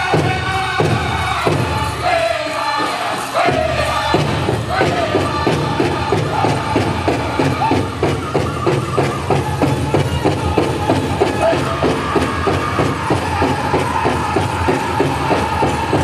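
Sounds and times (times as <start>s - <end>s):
singers high voices: 0.0s - 16.0s
big drum beating: 3.5s - 16.0s.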